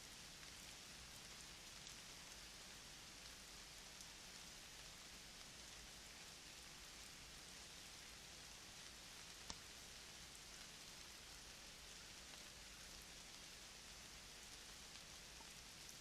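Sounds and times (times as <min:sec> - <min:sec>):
faint outdoor hiss: 0:00.0 - 0:16.0
soft ticks: 0:09.4 - 0:09.6.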